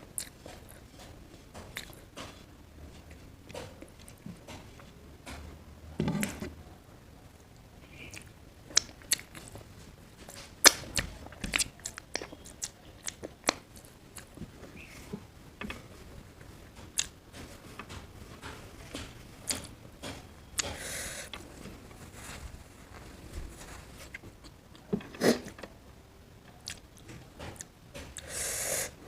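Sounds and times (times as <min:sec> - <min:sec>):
person chewing food: 0:00.1 - 0:02.5, 0:08.0 - 0:09.6, 0:10.2 - 0:15.3, 0:16.8 - 0:25.6, 0:26.5 - 0:28.3.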